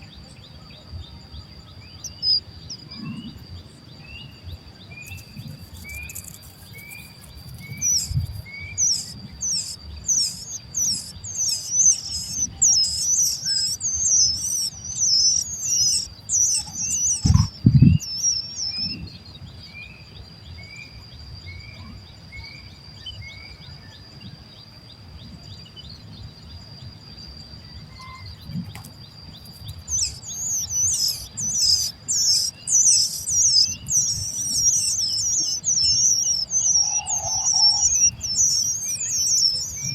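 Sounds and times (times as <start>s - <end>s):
baby birds chirping: 4.9s - 19.1s, 27.8s - 39.9s
soft rising chirp: 5.1s - 19.0s, 29.6s - 39.9s
low thumps: 17.2s - 18.0s
steady high tone: 30.2s - 39.9s.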